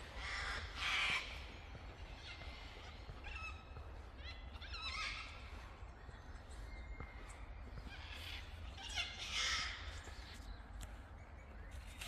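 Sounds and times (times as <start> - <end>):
harsh bird squawks: 0.1 - 1.5, 2.1 - 5.5, 7.8 - 10.0.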